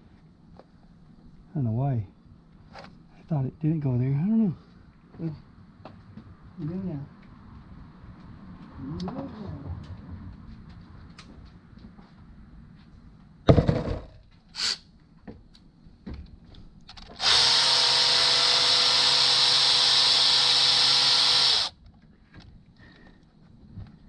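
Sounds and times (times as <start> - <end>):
sharp knock: 13.5 - 14.2
cordless drill driving bolt: 17.0 - 21.7.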